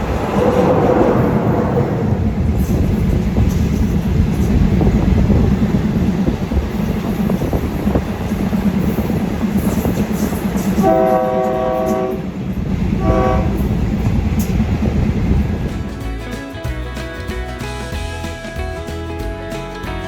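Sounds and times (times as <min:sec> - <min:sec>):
train rumbling and wheel clatter: 0:00.0 - 0:17.3
train horn blasts: 0:10.7 - 0:12.4, 0:13.0 - 0:13.8.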